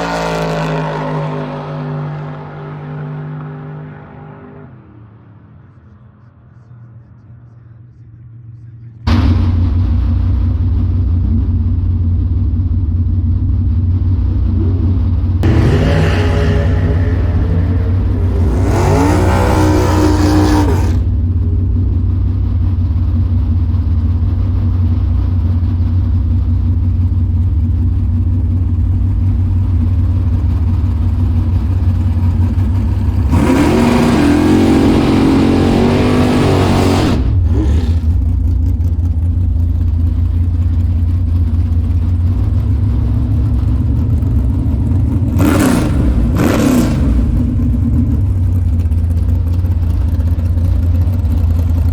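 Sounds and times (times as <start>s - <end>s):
car engine revving: 0.0s - 5.8s, 14.4s - 22.0s, 27.7s - 51.6s.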